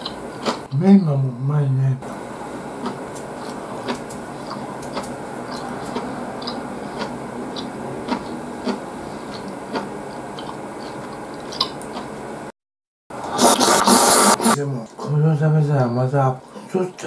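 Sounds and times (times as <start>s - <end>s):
man chewing noodles: 0.0s - 0.8s, 2.5s - 12.3s
wet mouth clicks: 2.8s - 12.1s.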